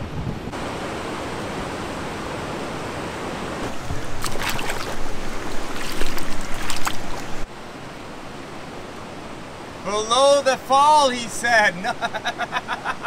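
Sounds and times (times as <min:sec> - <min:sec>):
river water rushing: 0:00.6 - 0:11.8
sharp splashes: 0:03.6 - 0:07.5.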